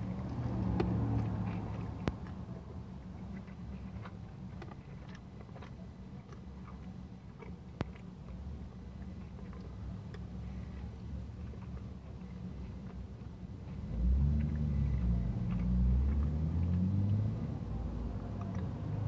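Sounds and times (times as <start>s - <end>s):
steady low hum: 0.0s - 19.0s
person biting and chewing: 14.0s - 17.3s.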